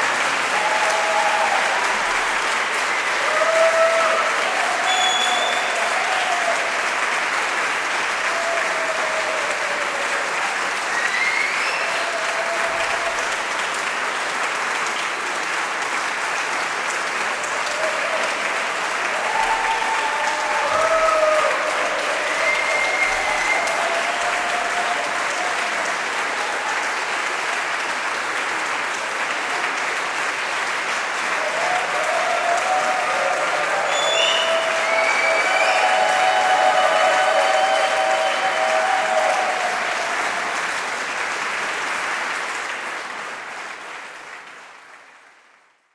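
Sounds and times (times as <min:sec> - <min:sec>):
audience applauding: 0:00.0 - 0:45.9
whistles: 0:04.8 - 0:05.8, 0:10.9 - 0:12.0, 0:22.3 - 0:23.8, 0:33.8 - 0:38.8.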